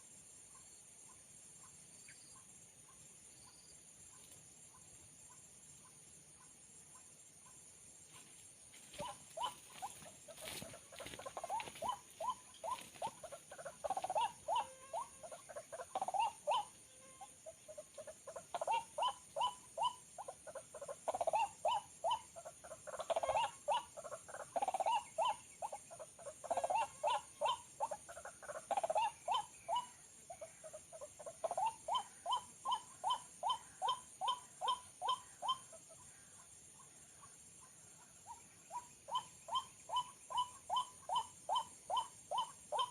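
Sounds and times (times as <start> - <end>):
steady high-pitched hiss: 0.0 - 42.9.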